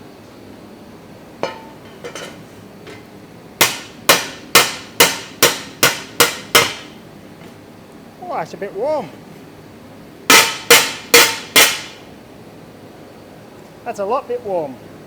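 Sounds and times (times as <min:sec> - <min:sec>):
gas forge roaring: 0:00.8 - 0:15.0
hammer blows on thin steel: 0:10.3 - 0:12.0.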